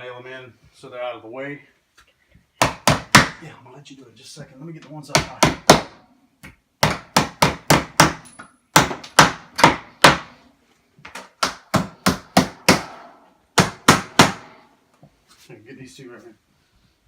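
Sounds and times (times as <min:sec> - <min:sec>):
hammer driving nails into wood: 0:02.6 - 0:03.4, 0:05.1 - 0:10.4, 0:11.1 - 0:14.6.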